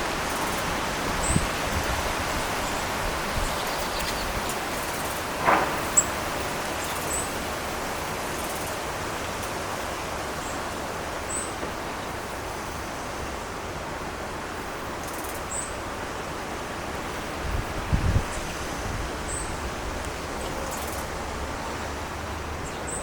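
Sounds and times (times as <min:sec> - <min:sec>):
steady outdoor hiss: 0:00.0 - 0:23.0
small birds high thin calls: 0:02.6 - 0:04.7.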